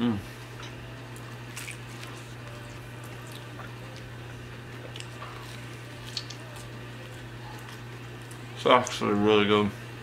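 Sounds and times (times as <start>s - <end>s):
steady low hum: 0.0s - 10.0s
pizza crust crackling: 1.1s - 9.0s
man chewing: 1.2s - 8.5s.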